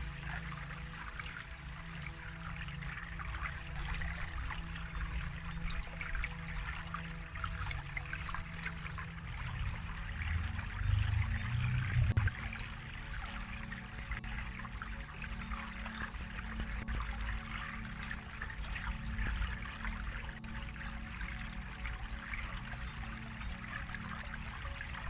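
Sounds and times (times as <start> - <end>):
stream trickling and babbling: 0.0 - 25.0
low rumble: 9.0 - 12.9.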